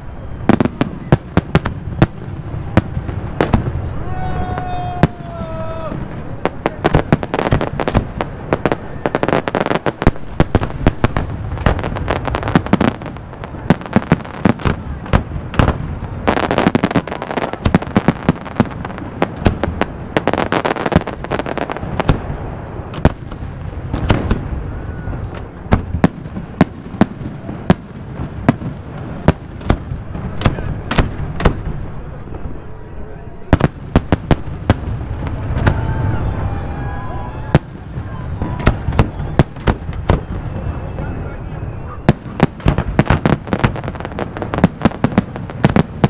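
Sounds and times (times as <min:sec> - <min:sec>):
fireworks and firecrackers banging: 0:00.0 - 0:46.0
continuous rumble: 0:21.2 - 0:44.5.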